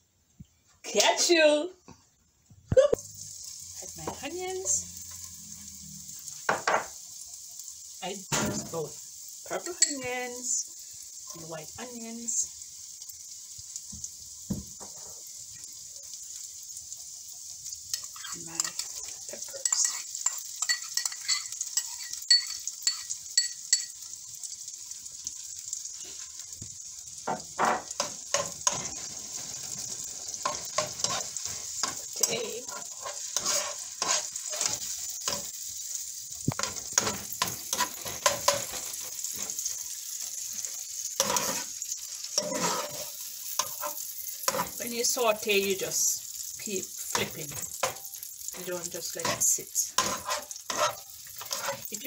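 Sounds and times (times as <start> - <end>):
vegetables sizzling in a frying pan: 0.0 - 52.0
utensil stirring and scraping pan: 8.4 - 10.6, 17.9 - 24.1, 27.2 - 52.0.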